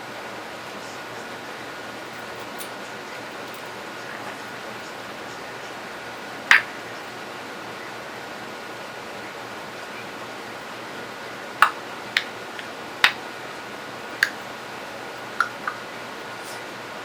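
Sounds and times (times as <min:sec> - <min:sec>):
parrot clicking: 0:06.5 - 0:06.8, 0:11.6 - 0:13.2, 0:14.2 - 0:14.4, 0:15.3 - 0:15.8.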